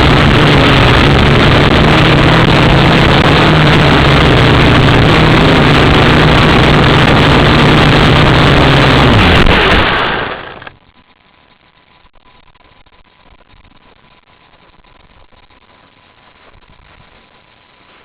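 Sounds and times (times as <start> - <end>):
quadcopter motors buzzing: 0.0 - 10.8.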